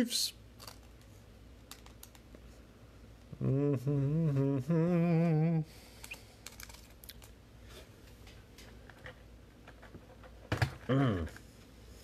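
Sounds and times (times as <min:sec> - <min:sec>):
trading cards clicking and rustling: 0:00.6 - 0:02.3, 0:06.0 - 0:07.4
person humming: 0:03.3 - 0:05.8, 0:10.8 - 0:11.4.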